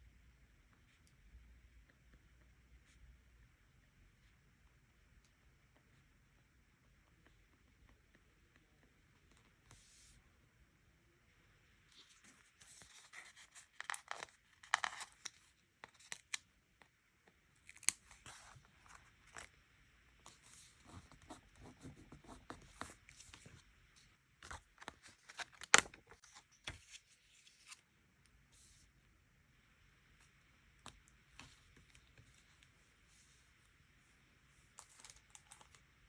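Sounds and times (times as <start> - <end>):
paper rustling: 24.4 - 27.8.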